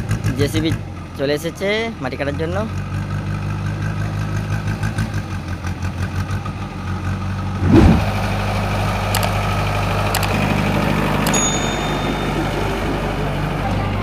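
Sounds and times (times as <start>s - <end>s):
diesel engine idling: 0.0s - 14.0s
loud thud: 7.6s - 8.2s.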